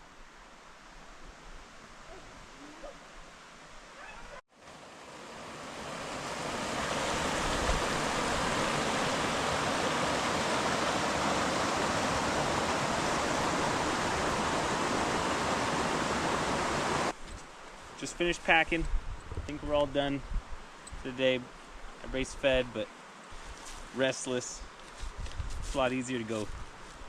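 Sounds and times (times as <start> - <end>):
river water rushing: 4.6 - 17.2.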